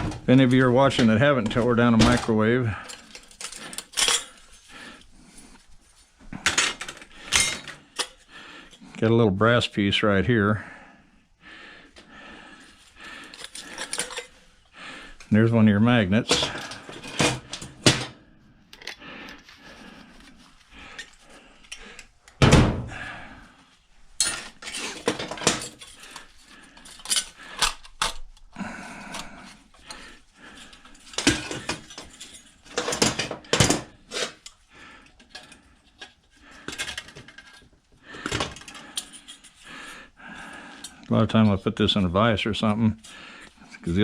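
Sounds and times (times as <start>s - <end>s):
metal tools clinking: 0.5s - 4.6s, 6.4s - 8.2s, 13.2s - 14.4s, 24.2s - 28.2s, 30.6s - 34.6s.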